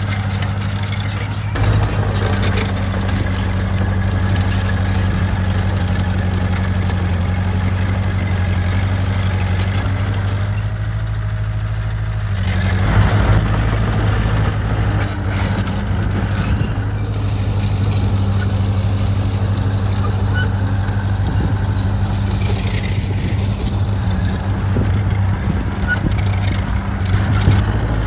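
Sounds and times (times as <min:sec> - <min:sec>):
diesel engine running: 0:00.0 - 0:28.0
metallic clinks and rattles: 0:14.4 - 0:28.0.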